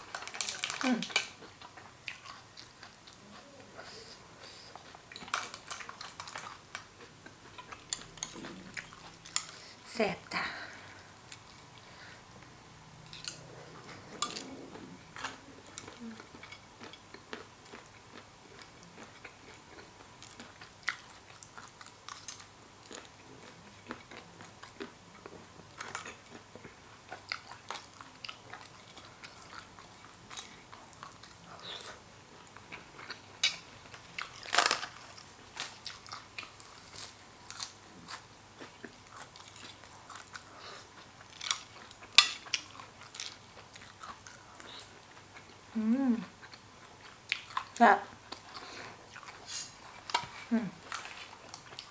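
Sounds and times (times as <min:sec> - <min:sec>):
chewing and biting food: 0:13.0 - 0:45.6, 0:46.4 - 0:51.9.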